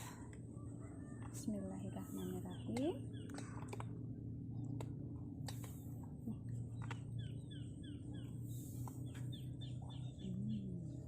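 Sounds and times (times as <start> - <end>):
steady low hum: 0.0 - 11.0
small bird chirping: 0.8 - 3.9, 6.2 - 11.0.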